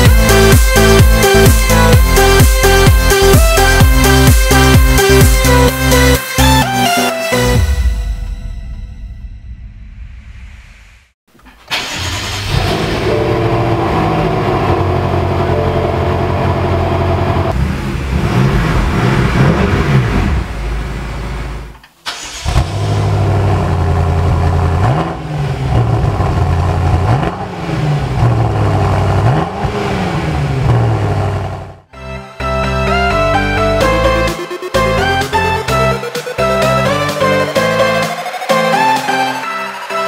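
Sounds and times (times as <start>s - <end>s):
car engine idling and revving: 0.0s - 6.6s, 11.4s - 31.9s.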